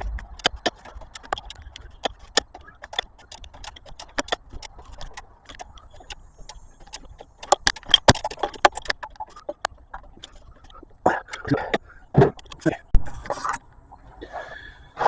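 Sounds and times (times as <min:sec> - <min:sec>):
socket ratchet clicking: 0:00.0 - 0:10.4.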